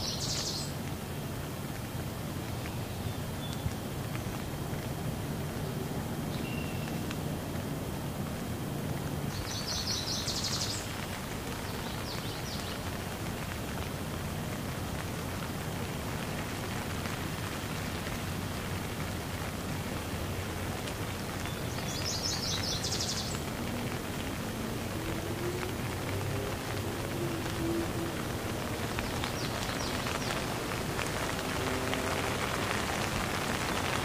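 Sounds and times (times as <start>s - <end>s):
steady rain: 0.0s - 34.0s.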